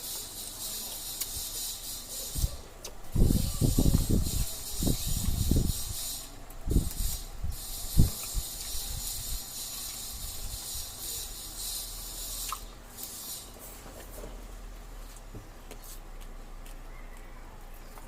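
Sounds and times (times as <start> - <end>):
high hiss: 0.0 - 13.7
clicks of mouths and utensils: 12.4 - 12.7
chewing: 12.4 - 13.2.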